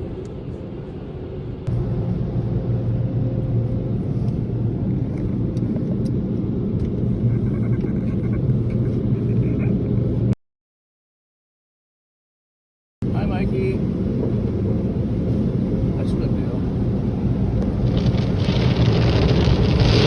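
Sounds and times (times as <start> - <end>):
car wash machinery rumbling: 1.7 - 10.3, 13.0 - 20.0.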